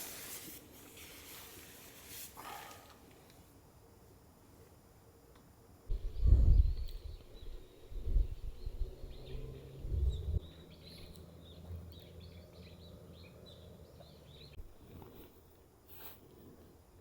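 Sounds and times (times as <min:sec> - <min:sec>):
small birds chirping: 0:05.9 - 0:15.2.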